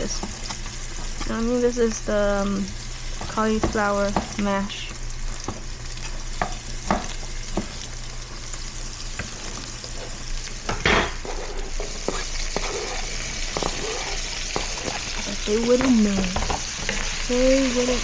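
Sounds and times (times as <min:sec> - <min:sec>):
food sizzling in a frying pan: 0:00.0 - 0:18.0
utensil clicking against pan: 0:11.8 - 0:17.2.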